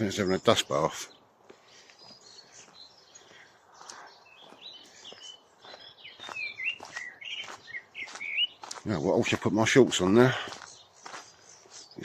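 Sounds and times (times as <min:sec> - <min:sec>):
small songbirds chirping: 0:00.0 - 0:12.0.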